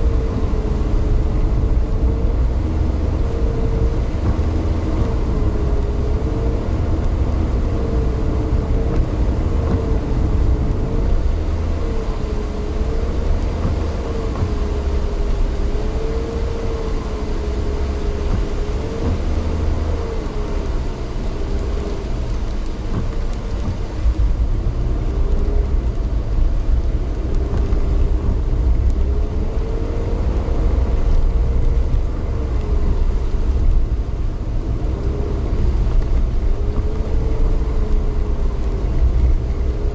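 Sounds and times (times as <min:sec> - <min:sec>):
vehicle engine rumble: 0:00.0 - 0:39.9.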